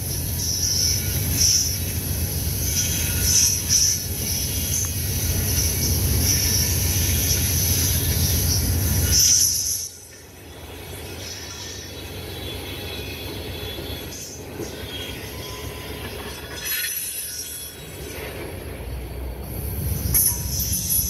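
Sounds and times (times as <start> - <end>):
freight train cars rumbling: 0.0 - 21.0
wheel squeal: 2.6 - 10.2, 10.8 - 18.4.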